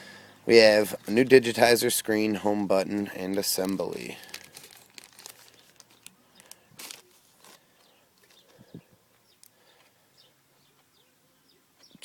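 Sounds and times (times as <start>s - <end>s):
packaging clicking and rustling: 2.9s - 8.6s.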